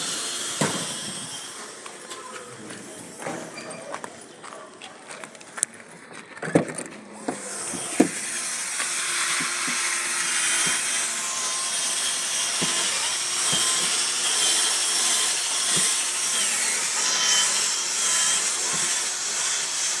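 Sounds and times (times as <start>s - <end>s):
cleaning machine hissing: 0.0s - 1.6s.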